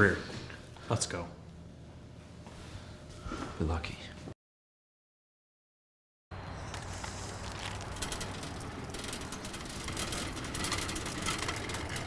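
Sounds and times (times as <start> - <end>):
rapid mechanical clicking: 7.3 - 12.0.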